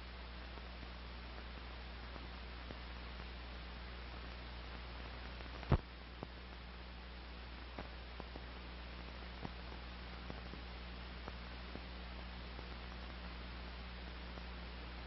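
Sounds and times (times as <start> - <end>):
film hiss: 0.0 - 15.0
low mains hum: 0.0 - 15.0
faint clicks and pops: 4.2 - 6.6, 7.6 - 8.4.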